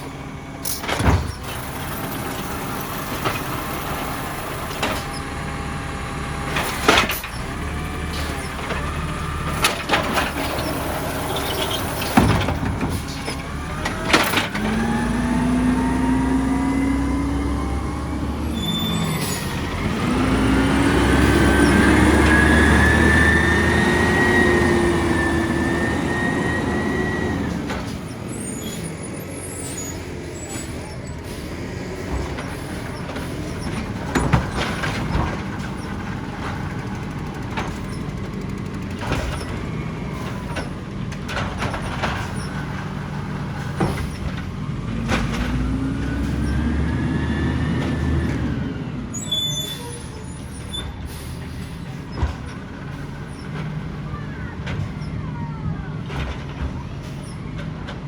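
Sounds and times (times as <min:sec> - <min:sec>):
garbage truck engine revving: 0:00.0 - 0:58.0
knocks and clanks: 0:00.6 - 0:05.2, 0:06.5 - 0:15.0, 0:30.5 - 0:46.5, 0:52.0 - 0:55.2, 0:56.0 - 0:58.0.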